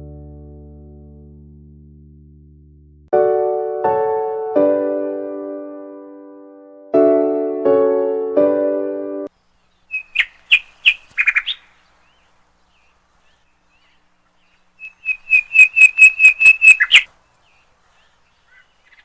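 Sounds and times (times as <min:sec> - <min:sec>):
bird chirping: 0:09.3 - 0:19.0.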